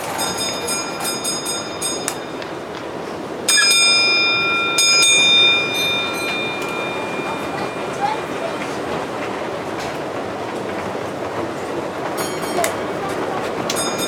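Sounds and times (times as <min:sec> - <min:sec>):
small bell ringing: 0:00.1 - 0:02.5, 0:03.5 - 0:08.6, 0:13.7 - 0:14.0.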